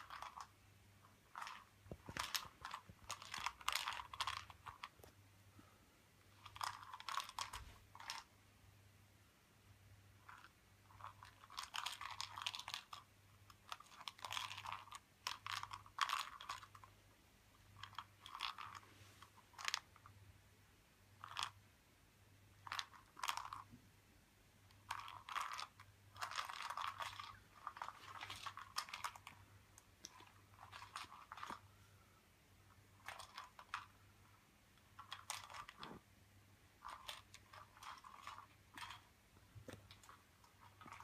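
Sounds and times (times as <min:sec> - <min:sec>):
cat crunching dry treats: 0:01.3 - 0:04.9, 0:36.8 - 0:39.1.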